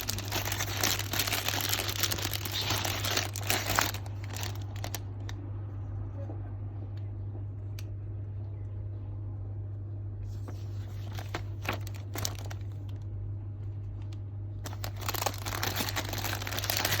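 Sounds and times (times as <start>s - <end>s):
crinkling and rustling handling: 0.0s - 5.4s, 10.3s - 13.1s, 13.9s - 17.0s
steady low hum: 0.0s - 17.0s.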